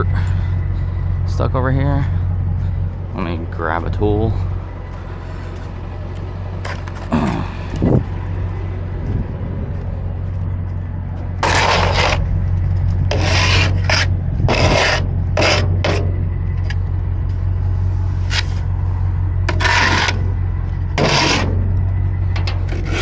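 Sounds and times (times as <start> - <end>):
steady low hum: 0.0 - 23.0
hand tool scraping dirt: 6.6 - 8.1, 11.4 - 16.1, 17.7 - 18.8, 19.5 - 20.3, 21.0 - 21.6, 22.4 - 23.0.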